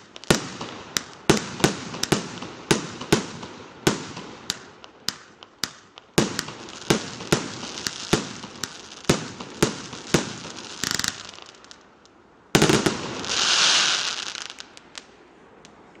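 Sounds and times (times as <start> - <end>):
fireworks hiss: 5.6 - 11.8, 12.6 - 15.2.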